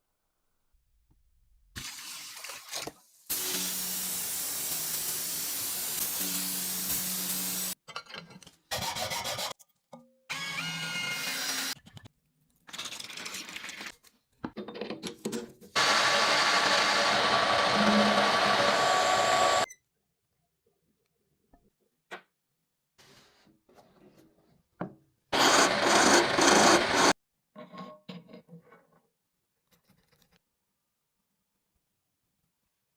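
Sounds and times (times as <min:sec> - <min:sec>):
power sander rasping on steel: 0:15.8 - 0:19.6, 0:25.4 - 0:27.1.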